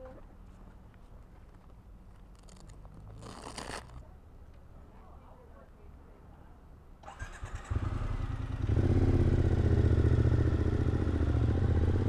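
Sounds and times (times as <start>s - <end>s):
motorcycle engine running: 7.6s - 12.0s.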